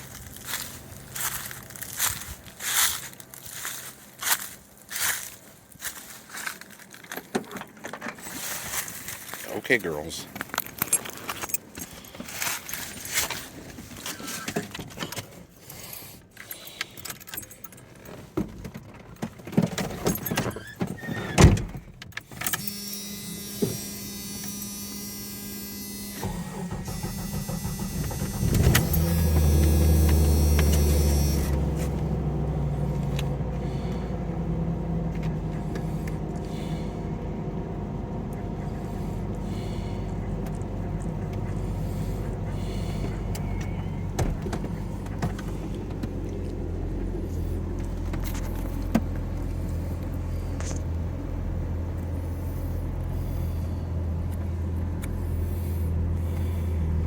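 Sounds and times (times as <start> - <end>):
car engine cranking and idling: 0.0 - 57.0
keys jangling and clicking: 10.3 - 13.5, 14.9 - 18.3.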